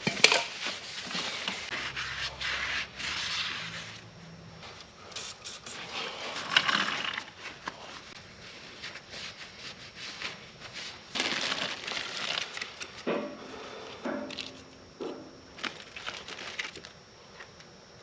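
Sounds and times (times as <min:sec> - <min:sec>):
hand sanding a surface: 0:00.7 - 0:04.0.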